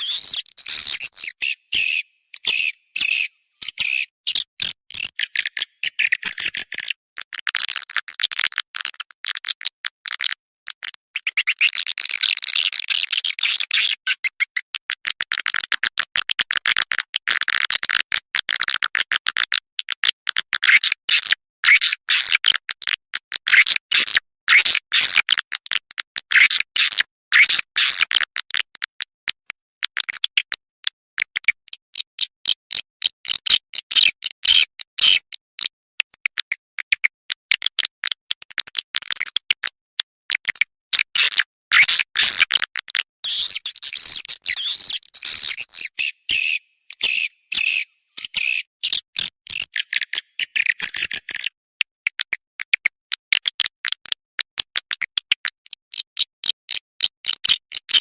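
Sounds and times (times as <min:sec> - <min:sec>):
swiftlet chirps and twitters: 0:00.0 - 0:06.6, 0:43.2 - 0:51.4.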